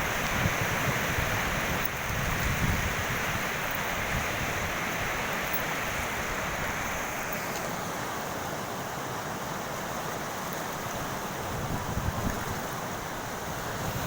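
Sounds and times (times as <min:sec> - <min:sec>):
steady rushing noise: 0:11.4 - 0:14.0.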